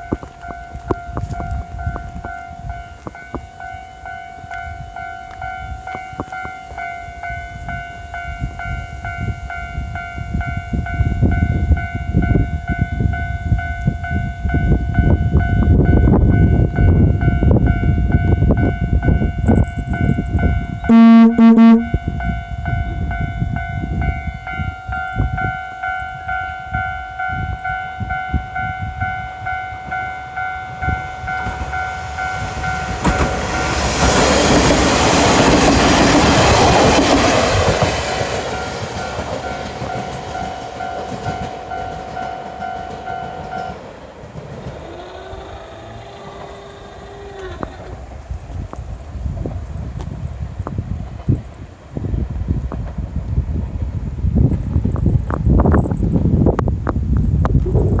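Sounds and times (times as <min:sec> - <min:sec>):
steady ringing tone: 0:00.0 - 0:35.1
diesel railcar passing: 0:00.0 - 0:57.9
train wheel clicks: 0:19.4 - 0:20.8, 0:30.8 - 0:51.7
train horn blast: 0:20.8 - 0:39.3.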